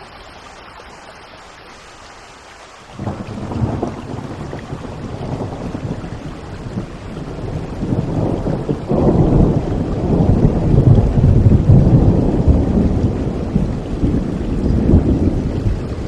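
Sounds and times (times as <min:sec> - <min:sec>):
steady rain: 0:00.0 - 0:16.0
thunder rumbling: 0:03.0 - 0:16.0.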